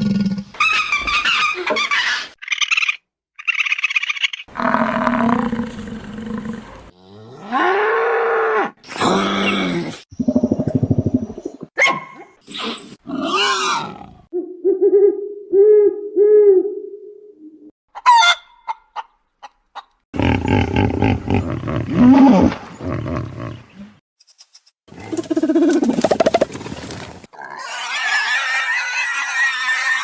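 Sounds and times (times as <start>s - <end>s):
long low rough animal call: 20.2s - 24.0s
low grunt-like pulses: 20.2s - 24.0s.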